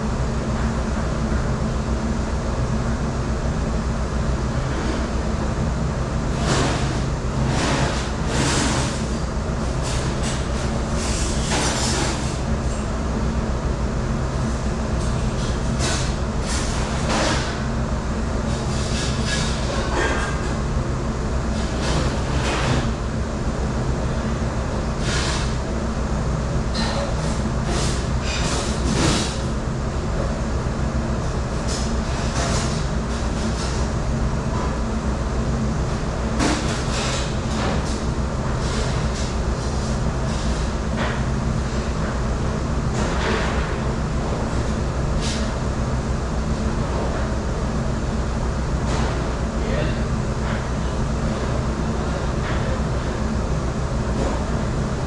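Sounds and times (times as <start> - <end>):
dish room machine drone: 0.0 - 55.0
dishes and racks clattering: 6.4 - 9.2, 9.8 - 12.4, 15.0 - 17.6, 18.5 - 20.6, 36.3 - 41.2.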